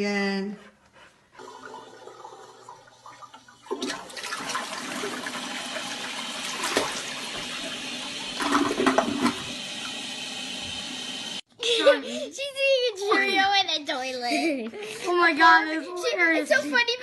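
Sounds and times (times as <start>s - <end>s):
toilet flushing: 1.4s - 11.4s.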